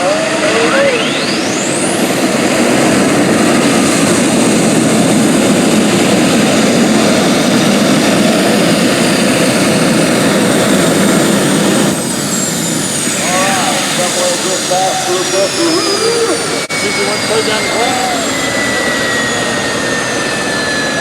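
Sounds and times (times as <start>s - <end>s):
high engine whine: 0.0s - 21.0s.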